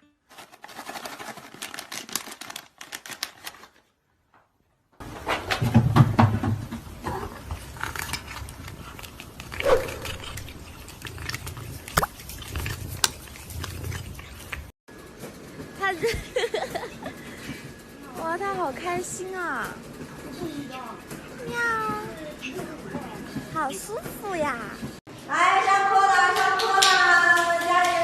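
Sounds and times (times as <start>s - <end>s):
pet animal sounds: 7.1s - 14.7s.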